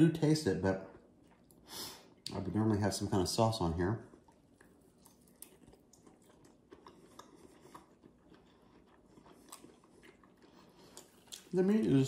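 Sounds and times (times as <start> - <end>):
faint chewing clicks: 4.0 - 11.6.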